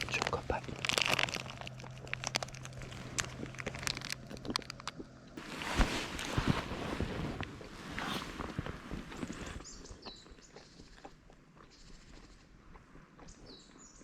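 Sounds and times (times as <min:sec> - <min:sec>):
plastic wrapper crinkling: 0:00.0 - 0:09.6.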